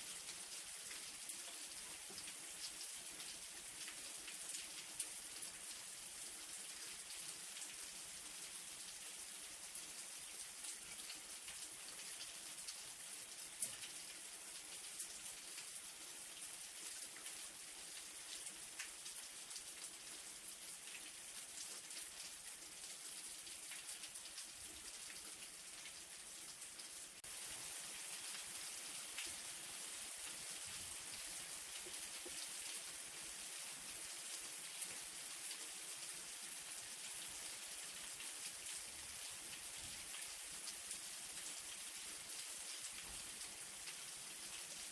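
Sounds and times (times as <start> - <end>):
light rain hiss: 0.0 - 44.9.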